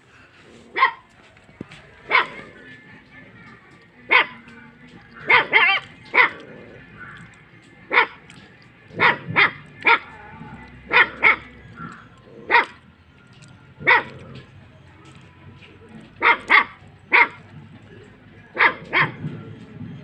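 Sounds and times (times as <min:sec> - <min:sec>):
dog barking: 0:00.7 - 0:01.1, 0:02.1 - 0:02.5, 0:04.1 - 0:04.4, 0:05.2 - 0:06.5, 0:07.9 - 0:10.2, 0:10.8 - 0:12.8, 0:13.8 - 0:14.4, 0:16.2 - 0:17.5, 0:18.5 - 0:19.3
dog wavering cry: 0:05.3 - 0:06.4.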